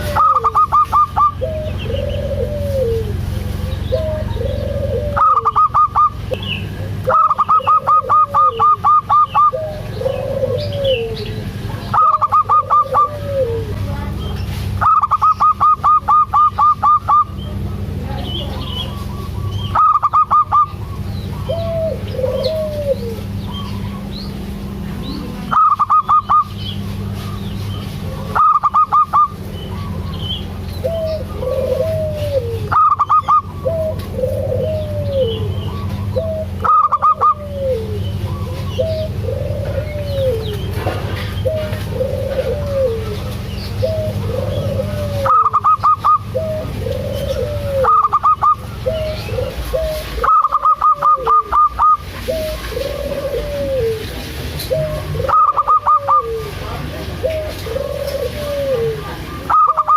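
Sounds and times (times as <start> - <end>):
dove staccato song bursts: 0.0 - 2.4, 5.0 - 9.6, 11.9 - 13.2, 14.8 - 17.5, 19.0 - 22.1, 25.5 - 26.8, 27.5 - 31.3
dove cooing: 0.0 - 59.9
steady low hum: 0.0 - 59.9.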